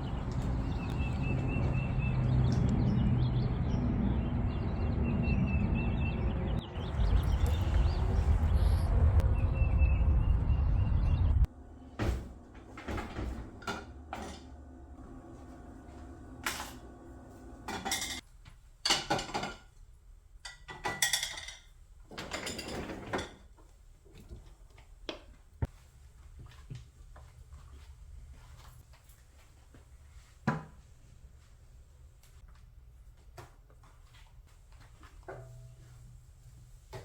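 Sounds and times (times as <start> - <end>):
birds outdoors: 0.0 - 11.5.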